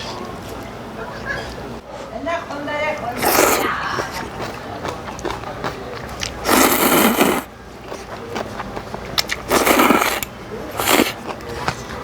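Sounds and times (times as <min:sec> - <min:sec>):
person slurping noodles: 0:03.2 - 0:11.7
chewing clicks: 0:03.2 - 0:12.0.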